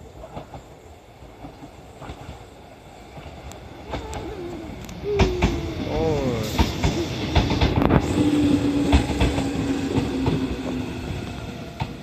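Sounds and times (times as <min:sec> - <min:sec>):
electric train rolling past: 0:00.0 - 0:12.0
wheels clacking over rail joints: 0:03.1 - 0:12.0.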